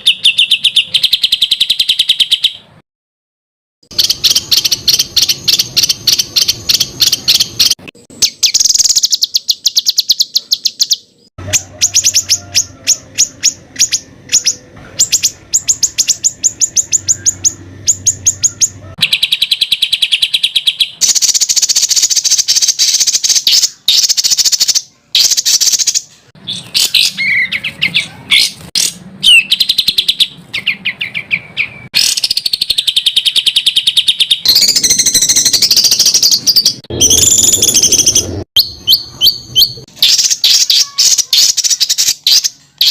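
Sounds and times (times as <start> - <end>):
songbird rapid high notes: 3.9 - 42.9
bird whistled notes: 29.2 - 42.9.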